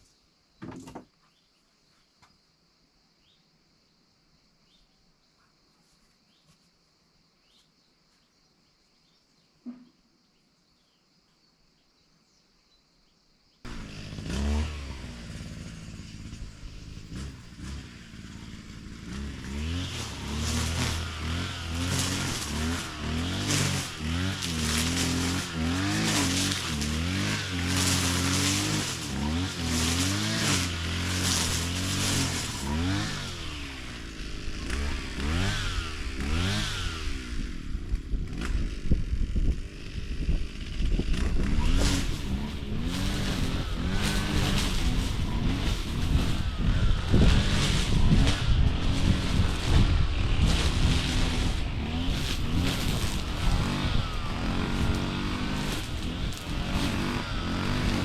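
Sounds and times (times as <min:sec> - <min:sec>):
small petrol engine revving: 0:13.7 - 0:58.0.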